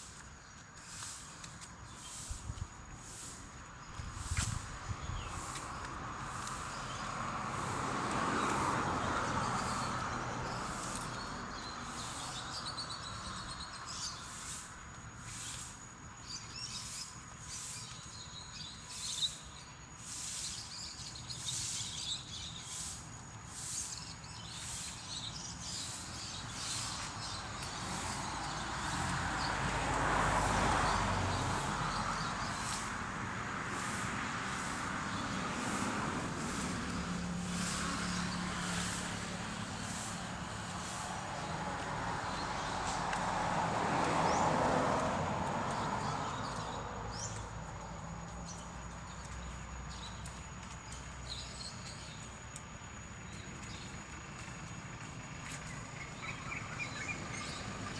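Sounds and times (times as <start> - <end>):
vehicle passing: 3.0 - 14.6, 25.7 - 52.2.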